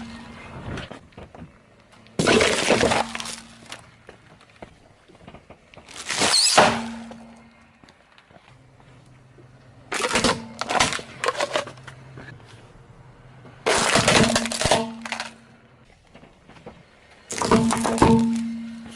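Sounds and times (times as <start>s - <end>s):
clattering and crashing: 9.9s - 12.0s, 13.6s - 15.4s, 16.1s - 18.9s.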